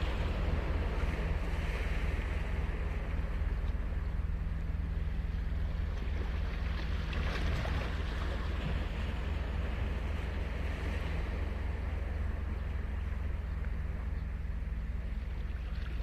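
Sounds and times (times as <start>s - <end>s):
ocean surf on sand: 0.0s - 4.0s, 5.8s - 14.1s.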